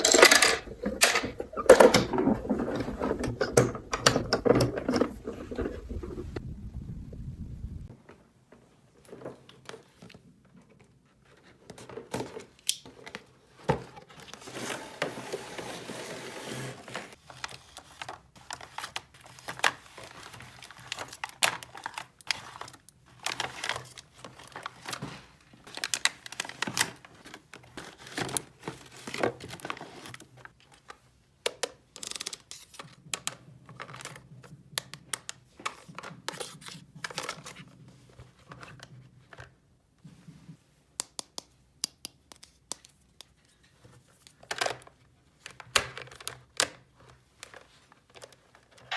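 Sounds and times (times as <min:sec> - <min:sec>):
plastic toy pieces clicking: 0:00.0 - 0:02.0
plastic packaging crinkling and tearing: 0:17.1 - 0:25.0, 0:25.6 - 0:30.3.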